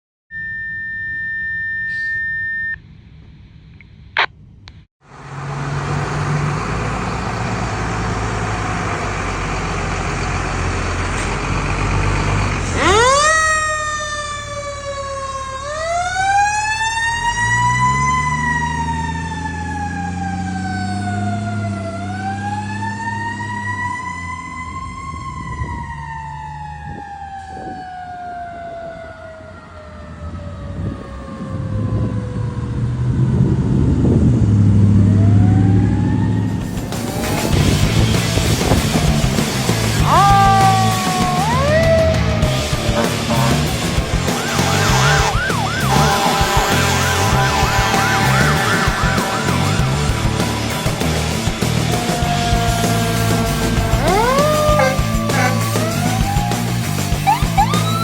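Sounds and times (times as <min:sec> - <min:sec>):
short beep: 0:00.3 - 0:02.8
siren wailing: 0:00.3 - 0:02.8, 0:12.6 - 0:33.0, 0:35.0 - 0:36.7, 0:39.8 - 0:58.0
fire engine running: 0:05.0 - 0:58.0.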